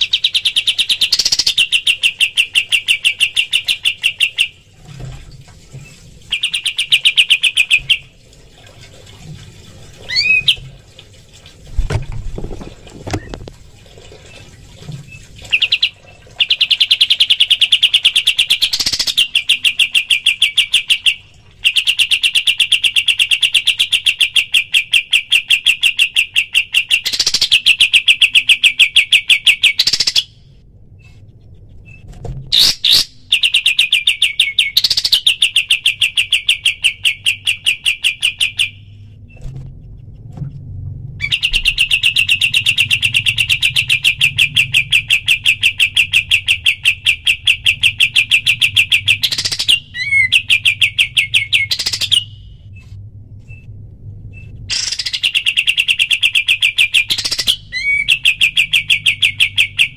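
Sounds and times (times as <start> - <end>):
bird trilling: 0.0 - 4.6, 10.1 - 10.6, 31.8 - 38.8, 41.2 - 52.5, 54.4 - 59.9.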